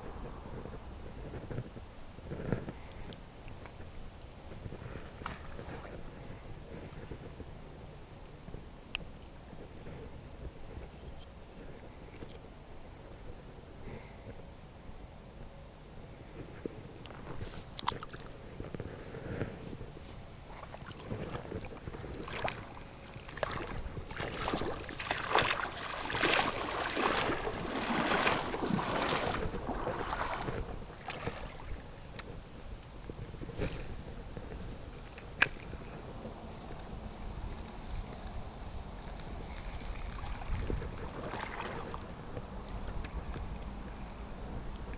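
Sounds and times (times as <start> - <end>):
outdoor background noise: 0.0 - 44.9
water sloshing and splashing: 20.0 - 32.3, 39.2 - 43.5.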